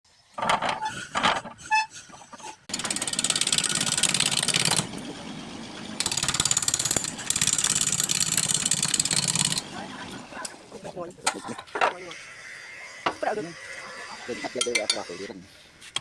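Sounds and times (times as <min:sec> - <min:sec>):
gouge cutting wood on a lathe: 0:02.7 - 0:10.5.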